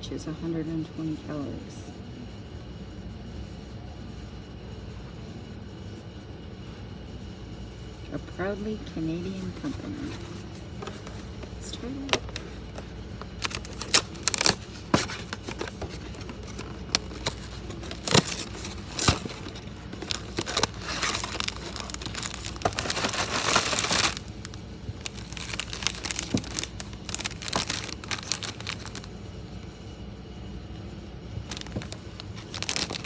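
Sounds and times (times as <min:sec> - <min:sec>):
plastic snack pouch crinkling: 0:10.1 - 0:29.2, 0:31.5 - 0:33.0.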